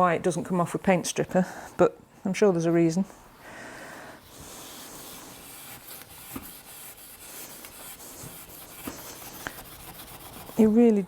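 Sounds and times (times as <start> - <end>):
wire wool rubbing on frame: 4.3 - 10.9.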